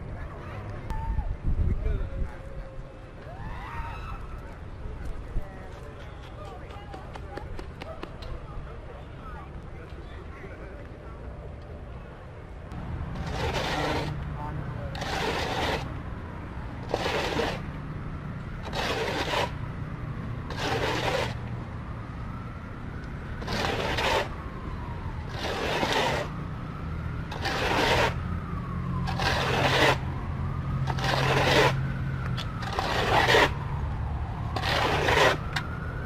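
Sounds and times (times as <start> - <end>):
scraping strokes: 13.0 - 16.0, 16.8 - 17.8, 18.6 - 19.6, 20.5 - 21.5, 23.4 - 24.5, 25.2 - 26.4, 27.2 - 28.2, 28.9 - 30.2, 30.8 - 33.6, 34.5 - 35.8.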